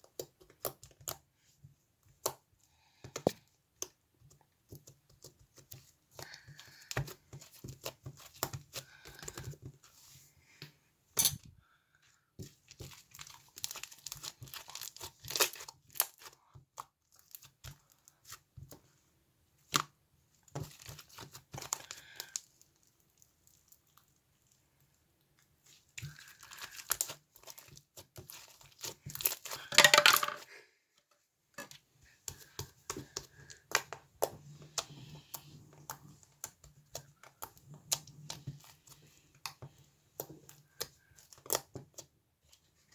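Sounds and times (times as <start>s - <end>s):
crinkly material rustling: 12.5s - 16.2s.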